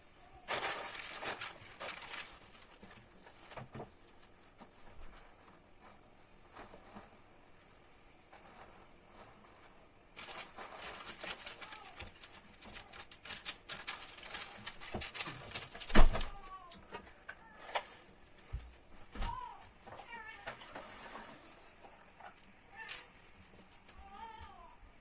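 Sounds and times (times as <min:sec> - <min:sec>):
hands clicking and rustling: 0:00.5 - 0:06.0, 0:10.2 - 0:18.4, 0:21.8 - 0:24.6
cat meowing: 0:22.7 - 0:23.2.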